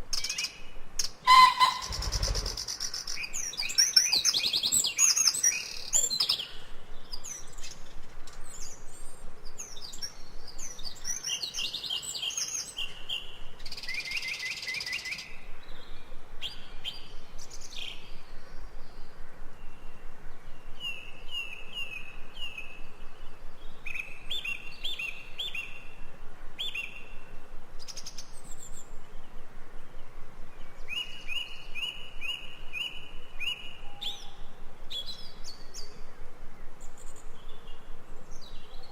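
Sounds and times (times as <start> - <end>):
birds chirping and singing: 1.3 - 6.6.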